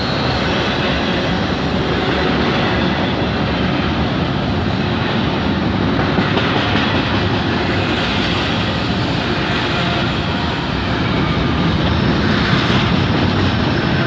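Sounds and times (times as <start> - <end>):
freight train wheels rumbling on rail: 0.0 - 14.0.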